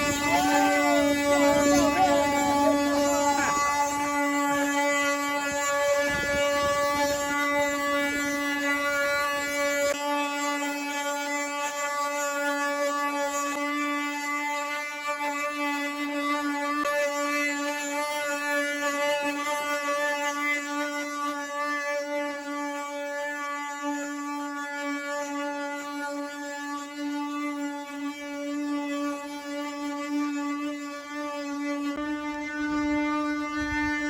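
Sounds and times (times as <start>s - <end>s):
wooden cart axle droning: 0.0s - 9.9s, 31.0s - 34.0s.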